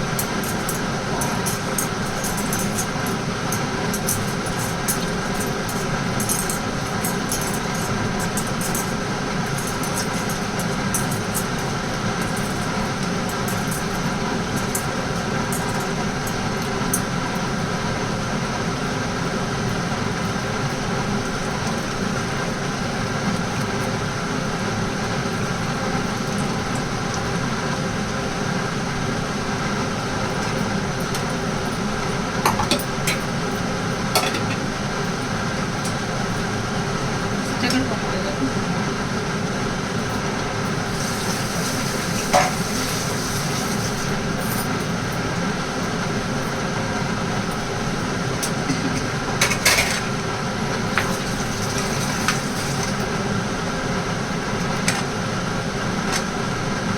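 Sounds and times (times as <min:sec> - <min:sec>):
steady mechanical hum: 0:00.0 - 0:56.9
food sizzling: 0:40.8 - 0:44.4, 0:50.8 - 0:53.2.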